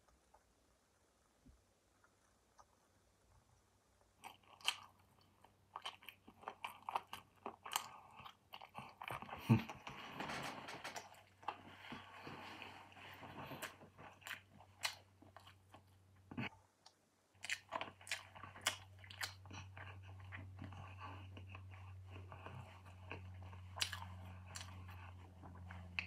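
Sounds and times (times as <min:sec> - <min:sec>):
person chewing and biting chicken: 0:04.2 - 0:09.8, 0:17.4 - 0:26.0
steady low hum: 0:06.4 - 0:26.0.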